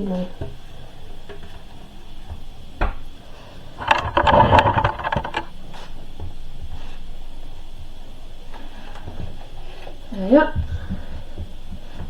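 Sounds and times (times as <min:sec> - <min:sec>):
plastic balls clattering: 0:03.8 - 0:05.5.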